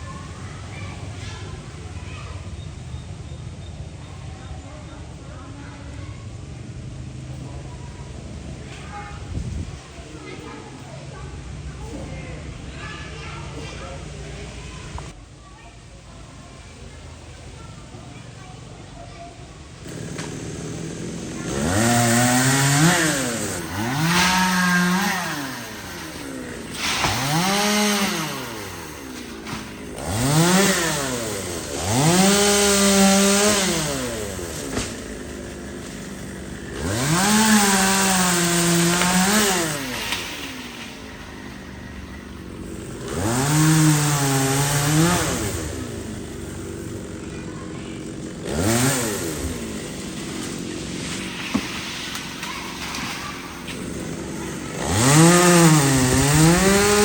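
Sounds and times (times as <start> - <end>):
chainsaw revving: 19.8 - 57.0.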